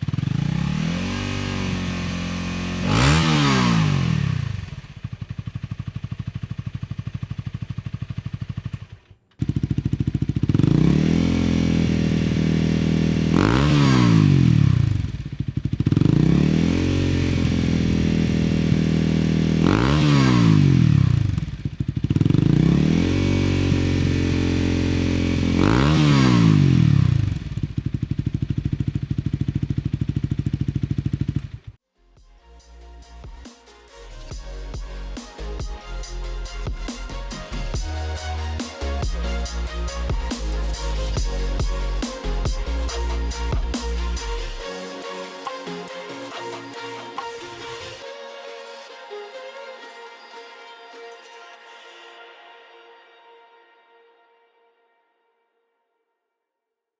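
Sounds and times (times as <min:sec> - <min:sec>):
motorcycle engine idling and revving: 0:00.0 - 0:31.8, 0:33.0 - 0:33.6, 0:34.2 - 0:44.7.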